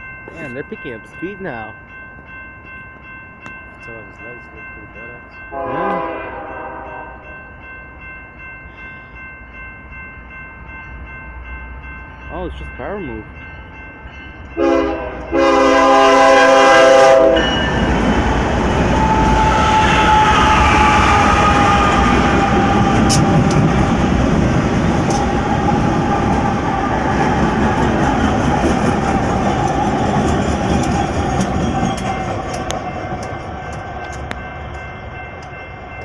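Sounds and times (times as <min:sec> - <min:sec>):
locomotive horn: 0:05.5 - 0:07.3, 0:14.6 - 0:23.9
locomotive engines and wheels rumbling: 0:07.6 - 0:36.0.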